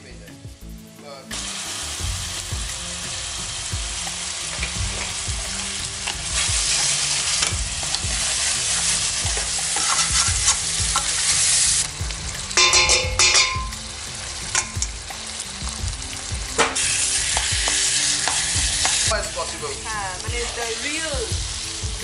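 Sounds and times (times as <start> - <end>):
prawns sizzling in oil: 1.3 - 22.0
spatula knocking frying pan: 9.3 - 11.2, 12.6 - 13.8, 16.6 - 19.1.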